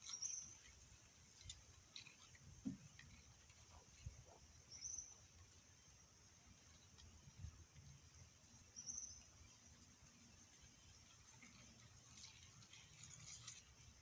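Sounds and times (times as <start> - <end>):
rustling: 0.0 - 4.3, 10.8 - 14.0.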